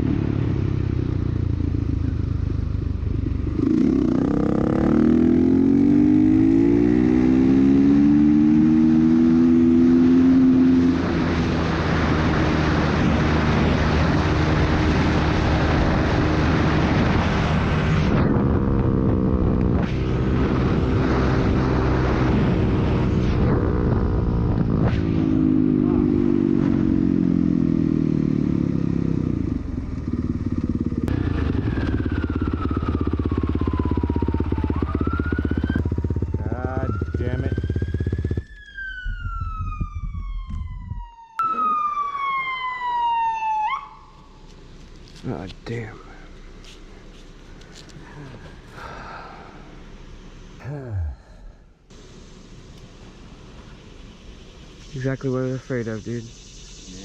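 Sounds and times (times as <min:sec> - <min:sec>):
dirt bike engine accelerating: 0:02.5 - 0:42.0
loud rushing hiss: 0:51.9 - 0:57.0.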